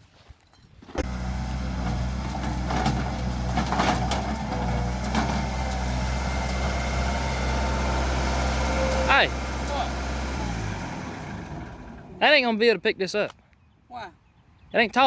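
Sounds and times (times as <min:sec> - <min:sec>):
skid steer engine running: 0:01.0 - 0:12.2.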